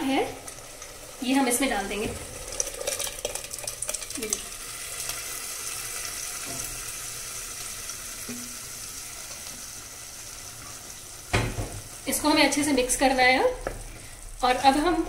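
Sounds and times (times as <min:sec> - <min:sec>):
food sizzling in a pot: 0:00.0 - 0:15.0
knocks on a pot: 0:11.3 - 0:11.8.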